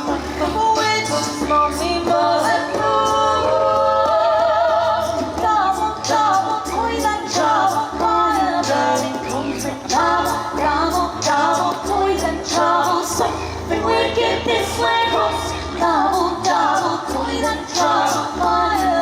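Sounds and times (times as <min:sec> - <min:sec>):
low bass line short notes: 0:00.0 - 0:19.0
small choir singing a cappella: 0:00.0 - 0:19.0.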